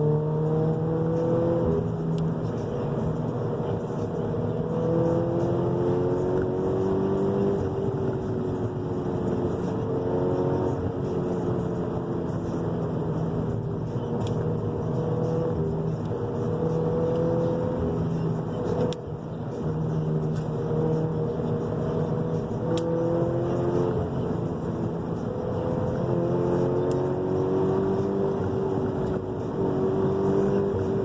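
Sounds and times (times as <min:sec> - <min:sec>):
car engine revving: 0:00.0 - 0:31.0.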